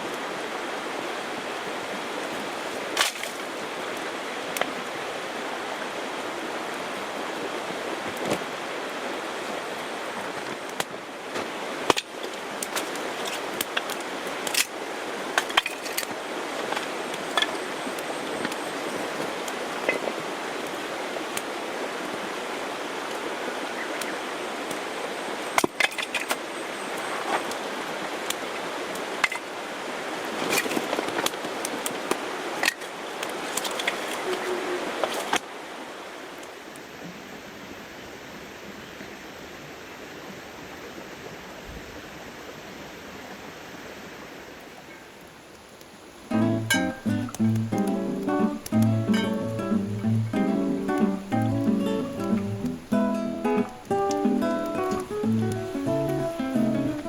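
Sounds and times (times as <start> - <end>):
campfire hissing: 0.0 - 57.0
fire popping and crackling: 9.6 - 21.5, 46.3 - 57.0.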